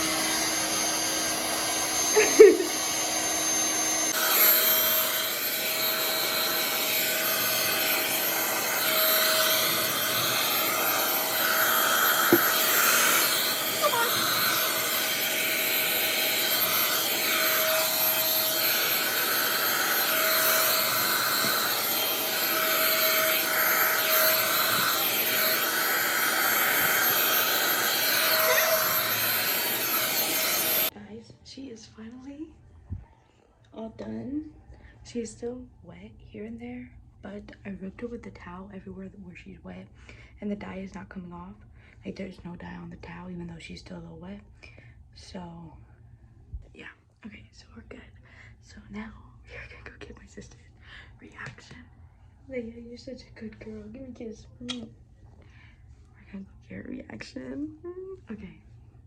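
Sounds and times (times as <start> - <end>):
hair dryer blowing: 0.0 - 31.0.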